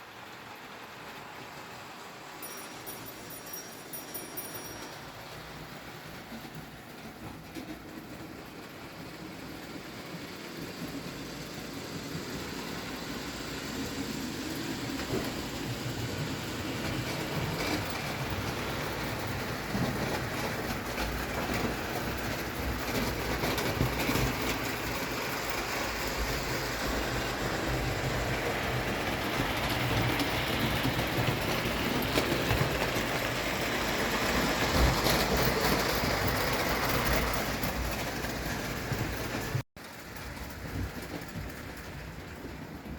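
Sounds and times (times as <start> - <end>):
wheels clicking on rails: 0.0 - 42.9.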